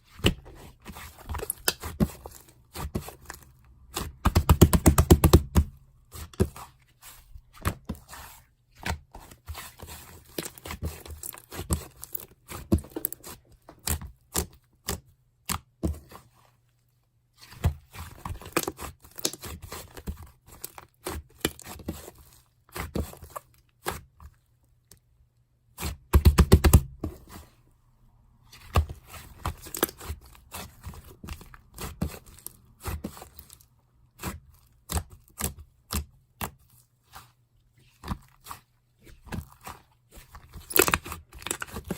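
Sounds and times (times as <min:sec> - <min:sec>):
slime squelching and crackling: 0:28.6 - 0:41.9.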